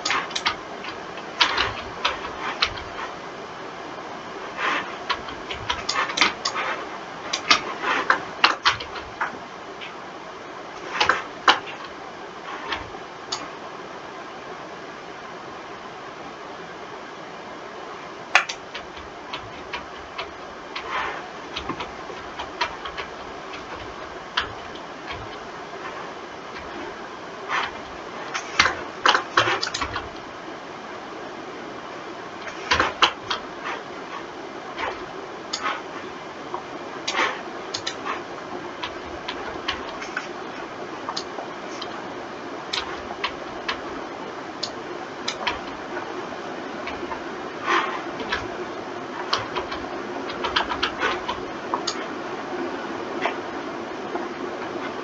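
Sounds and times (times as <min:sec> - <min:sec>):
background hiss: 0:00.0 - 0:55.0
mouse and keyboard clicks: 0:18.4 - 0:25.4, 0:37.1 - 0:38.2, 0:42.8 - 0:43.8, 0:44.6 - 0:46.1.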